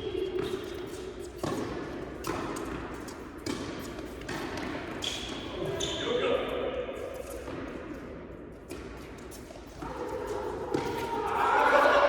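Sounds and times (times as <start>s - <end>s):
tennis balls hit and bouncing: 0.2s - 5.5s, 7.4s - 11.3s.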